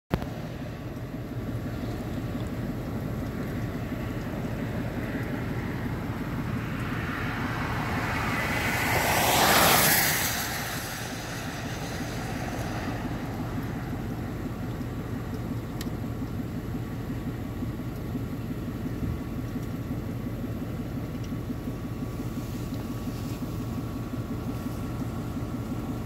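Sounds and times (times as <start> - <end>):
car driving rumble: 0.1 - 26.0
passing vehicle whoosh: 4.9 - 14.5.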